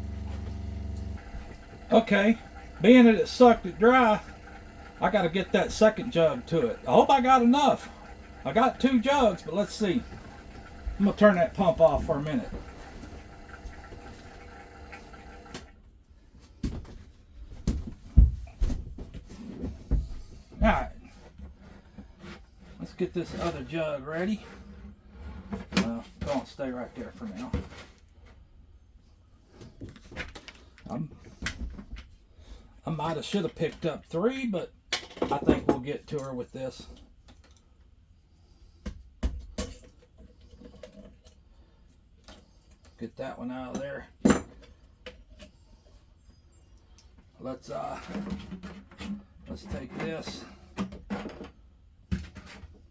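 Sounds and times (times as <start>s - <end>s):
water pump running: 0.0s - 15.8s.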